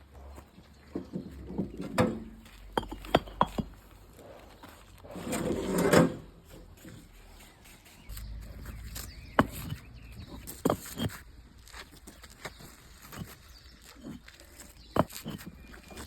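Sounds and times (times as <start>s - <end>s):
concrete pavers knocking: 0.9s - 3.9s, 8.4s - 16.0s
paver scraping: 1.5s - 16.0s.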